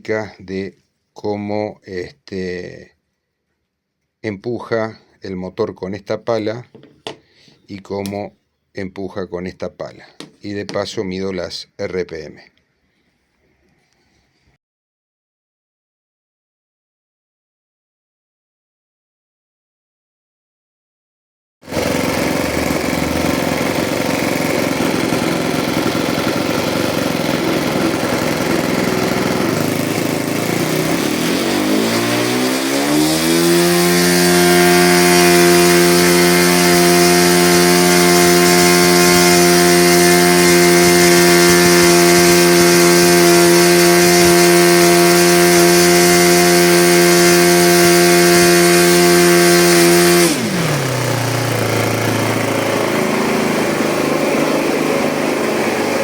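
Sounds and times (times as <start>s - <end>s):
model aircraft engine revving: 21.7s - 56.0s.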